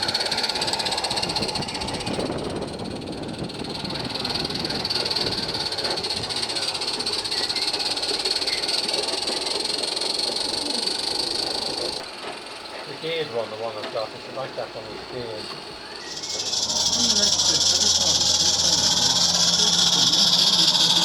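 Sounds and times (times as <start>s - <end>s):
steam locomotive hissing: 0.0s - 21.0s.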